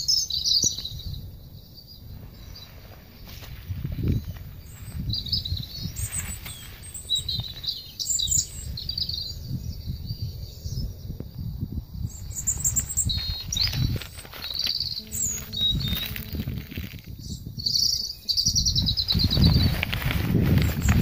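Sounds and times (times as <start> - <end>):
small birds chirping: 0.0 - 21.0
low rumble on microphone: 0.8 - 21.0
rustling of leaves: 2.0 - 9.0, 12.2 - 21.0.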